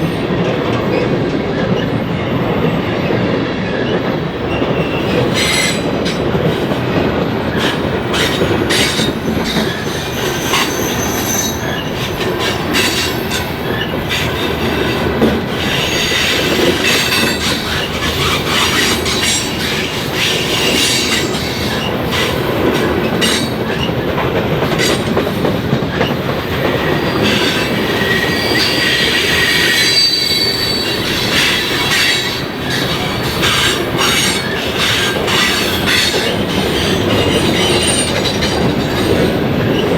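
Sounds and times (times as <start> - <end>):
train wheels clicking over rail joints: 0.0 - 39.9
high-pitched wheel squeals: 7.6 - 15.0, 26.9 - 39.9.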